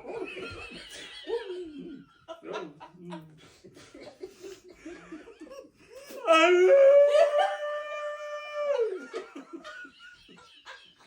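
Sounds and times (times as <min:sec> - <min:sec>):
laughter: 0:00.0 - 0:06.2, 0:08.8 - 0:11.0
long howl: 0:06.2 - 0:09.1.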